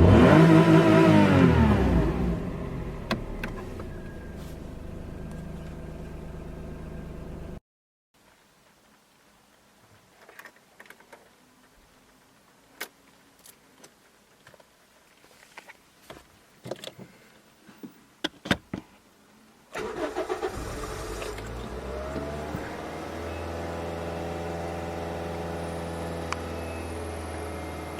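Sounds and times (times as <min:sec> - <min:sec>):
car engine starting: 0:00.0 - 0:07.6, 0:19.8 - 0:27.9.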